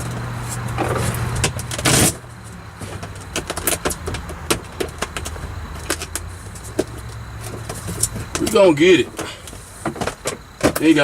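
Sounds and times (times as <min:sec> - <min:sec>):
loud rustle: 0:00.0 - 0:04.0
sheet crinkling and tapping: 0:02.8 - 0:11.0.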